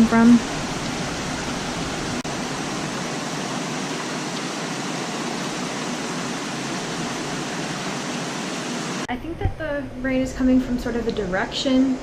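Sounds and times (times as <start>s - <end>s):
steady rain falling: 0.0s - 9.1s.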